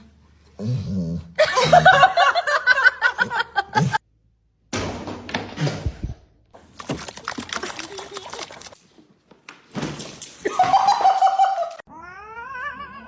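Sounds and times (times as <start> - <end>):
person laughing: 1.4 - 4.0.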